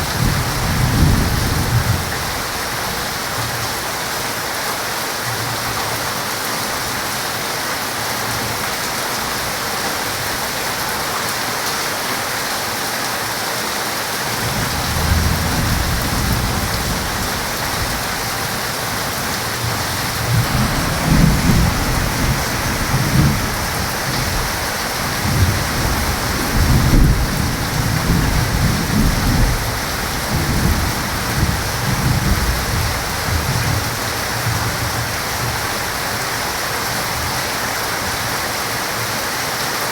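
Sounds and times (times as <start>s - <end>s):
thunder rolling: 0.0s - 2.6s, 14.3s - 35.6s
heavy rain: 0.0s - 39.9s.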